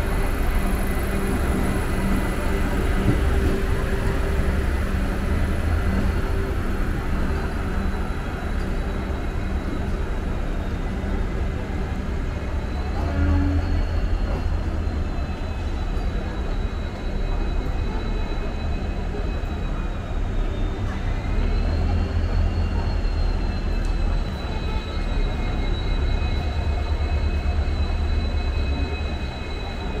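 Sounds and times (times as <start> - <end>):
electric train low rumble: 0.0 - 30.0.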